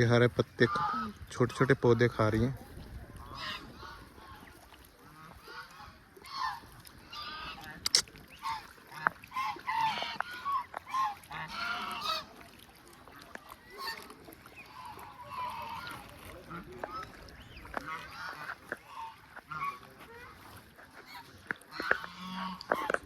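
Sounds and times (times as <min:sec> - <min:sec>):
waterfowl honking: 0:00.5 - 0:02.0, 0:03.1 - 0:23.0
sharp click: 0:07.8 - 0:08.1.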